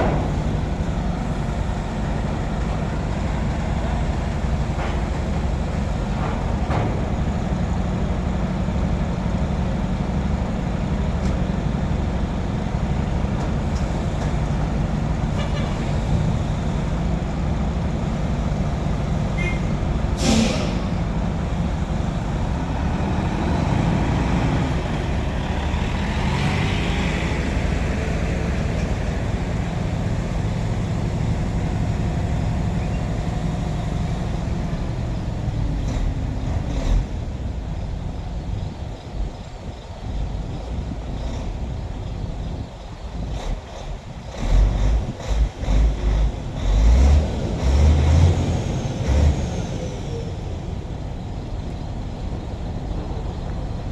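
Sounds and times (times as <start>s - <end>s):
truck diesel engine running: 0.0s - 53.9s
sharp hiss: 20.2s - 21.0s.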